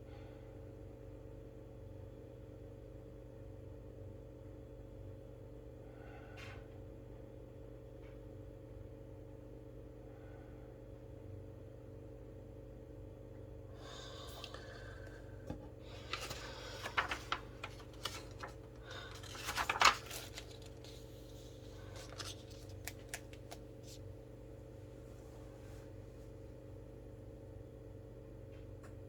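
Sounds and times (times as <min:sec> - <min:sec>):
low electrical hum: 0:00.0 - 0:29.0
rustling: 0:15.9 - 0:24.0.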